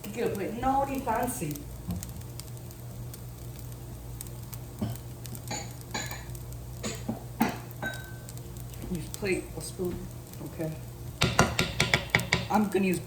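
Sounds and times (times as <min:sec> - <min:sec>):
rice sizzling in a pan: 0:00.0 - 0:13.0
kitchenware clattering: 0:05.5 - 0:08.1, 0:11.2 - 0:12.6.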